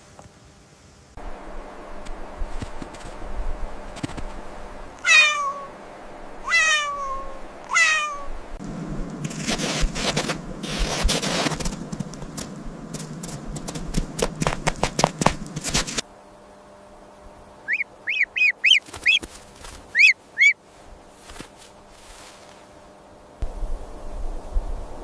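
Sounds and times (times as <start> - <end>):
crackling rustling with clicks: 2.0 - 3.2, 3.8 - 4.4, 9.0 - 16.0, 18.7 - 20.1, 20.8 - 22.7
high animal calls: 5.0 - 5.8, 6.4 - 8.4, 17.6 - 19.3, 19.9 - 20.6.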